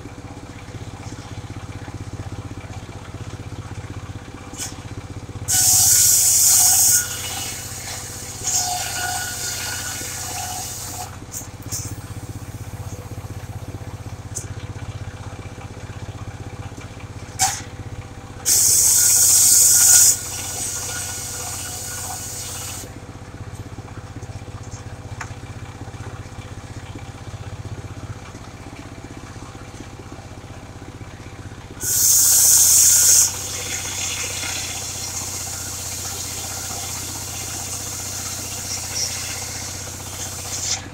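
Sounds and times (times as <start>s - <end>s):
sawmill engine running: 0.0s - 40.9s
loud hissing bursts: 5.5s - 8.8s, 18.5s - 22.9s, 31.8s - 40.7s.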